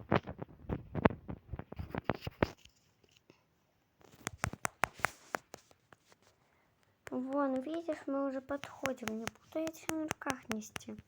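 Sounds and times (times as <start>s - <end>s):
small objects tapping on hard surface: 7.0s - 11.0s.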